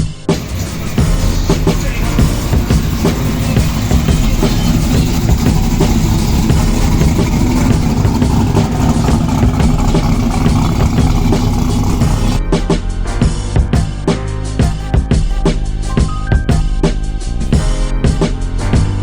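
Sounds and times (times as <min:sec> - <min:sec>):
engine idling and revving: 0:00.3 - 0:19.0.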